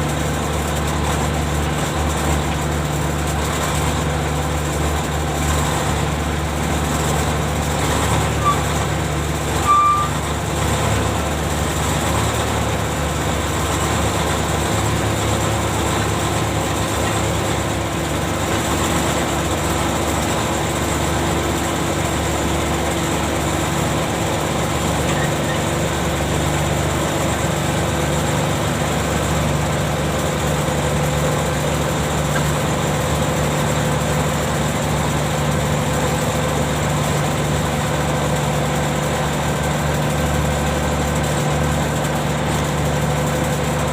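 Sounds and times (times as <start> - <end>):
ship engine drone: 6.8 - 36.8.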